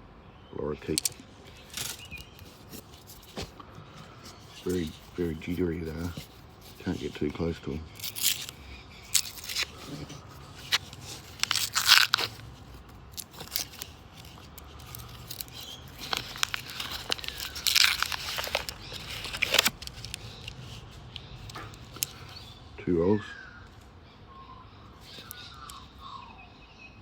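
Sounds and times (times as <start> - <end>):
paper wrappers tearing and crumpling: 0.9 - 22.5.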